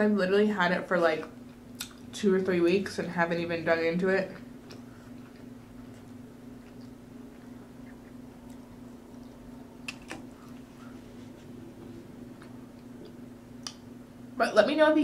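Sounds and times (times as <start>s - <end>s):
low electrical hum: 0.0s - 15.0s
sharp mouth clicks: 1.7s - 2.0s
chewing mouth sounds: 4.6s - 11.5s.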